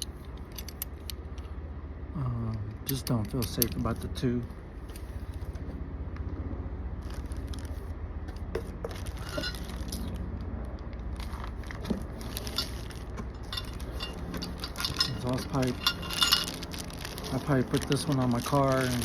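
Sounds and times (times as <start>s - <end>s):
parts scraping and clinking: 0.0s - 1.5s, 2.6s - 4.1s, 8.6s - 10.2s, 11.2s - 19.0s
steady low hum: 0.0s - 19.0s
packaging rustling: 7.0s - 7.9s, 8.8s - 10.2s, 11.0s - 19.0s.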